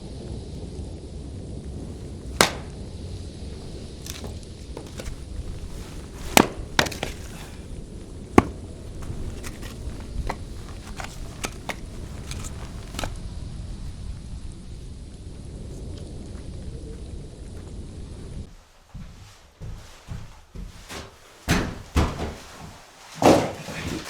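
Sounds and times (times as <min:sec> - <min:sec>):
wood fire crackling and popping: 0:01.7 - 0:13.2
steady low rumble: 0:13.1 - 0:18.5.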